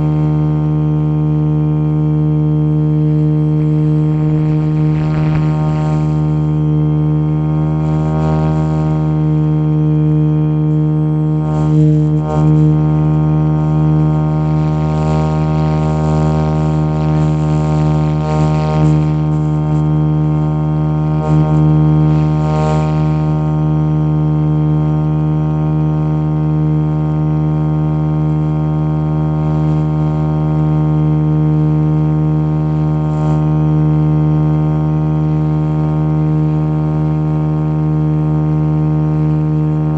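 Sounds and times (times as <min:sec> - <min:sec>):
model helicopter droning hum: 0:00.0 - 0:39.9.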